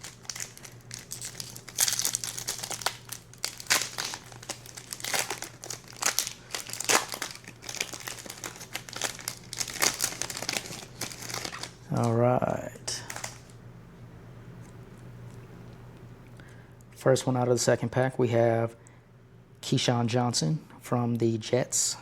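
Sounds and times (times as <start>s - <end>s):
plastic wrapper crinkling: 0.0s - 13.6s
faint low hum: 0.0s - 22.0s.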